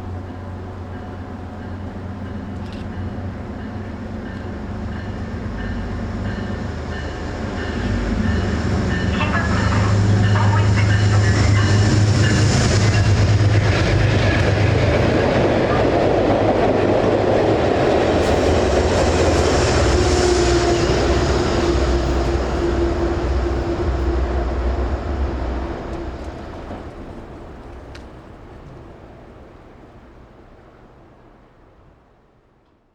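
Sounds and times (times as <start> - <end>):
locomotive hum and rumble: 0.0 - 32.2
wheels clattering on rails: 25.1 - 29.4.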